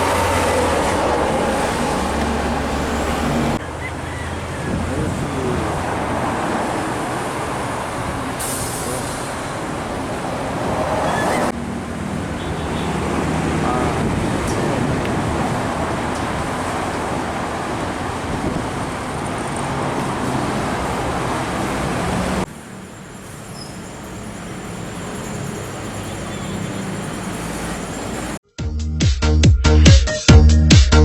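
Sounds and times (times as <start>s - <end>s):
road traffic passing: 0.0s - 28.4s.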